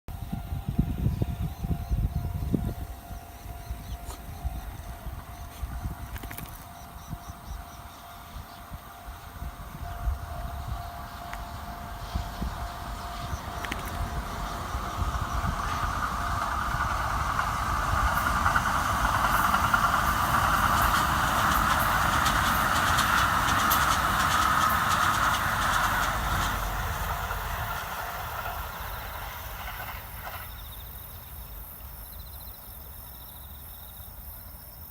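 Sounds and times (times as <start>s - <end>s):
crossing warning bell: 0.1s - 25.0s
electric train passing: 0.1s - 34.9s
insects chirping faintly: 0.2s - 34.9s
wheels clicking over rail joints: 11.2s - 30.6s.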